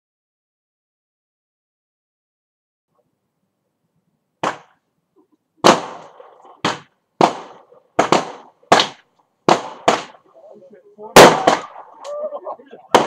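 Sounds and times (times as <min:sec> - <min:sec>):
fireworks banging: 0:05.6 - 0:10.3, 0:11.0 - 0:12.2, 0:12.8 - 0:13.0.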